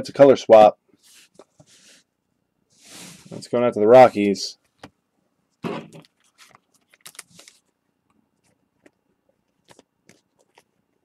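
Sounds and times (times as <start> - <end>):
cards rustling and clicking: 5.9 - 7.8, 8.4 - 11.0.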